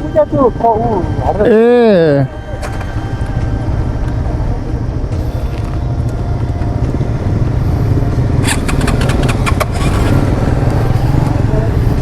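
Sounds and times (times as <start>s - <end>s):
motorcycle engine rumble: 0.0s - 12.0s
wind noise: 0.0s - 12.0s
sharp clicks or rattles: 8.4s - 10.2s.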